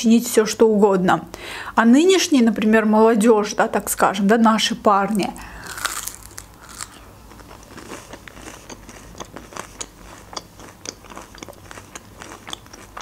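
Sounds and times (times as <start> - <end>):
crunchy chewing: 5.6 - 13.0.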